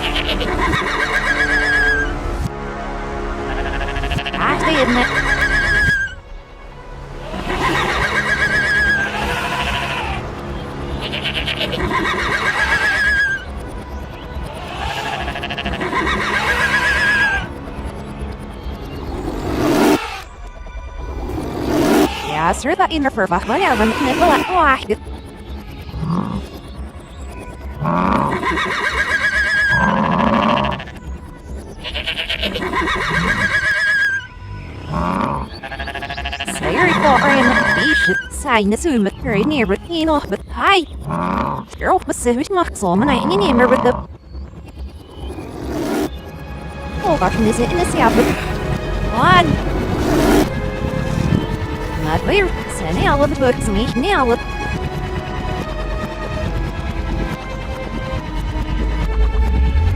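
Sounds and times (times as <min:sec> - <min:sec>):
cartoon farm animal cries: 0:00.0 - 0:02.1, 0:03.5 - 0:06.2, 0:07.2 - 0:10.2, 0:11.1 - 0:13.4, 0:14.5 - 0:17.5, 0:22.1 - 0:22.5, 0:23.4 - 0:24.9, 0:25.9 - 0:26.6, 0:27.8 - 0:31.0, 0:31.8 - 0:38.4
background music: 0:00.0 - 0:59.9
cartoon animal bleats: 0:03.5 - 0:06.1, 0:07.2 - 0:10.2, 0:14.6 - 0:17.5, 0:23.4 - 0:24.8.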